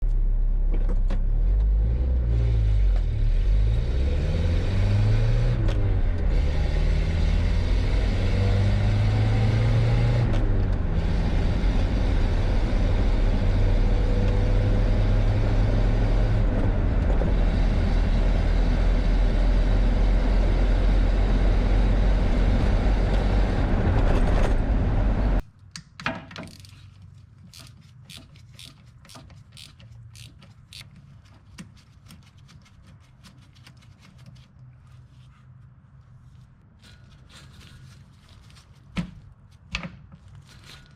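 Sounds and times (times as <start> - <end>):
pickup truck engine driving: 0.1 - 25.4.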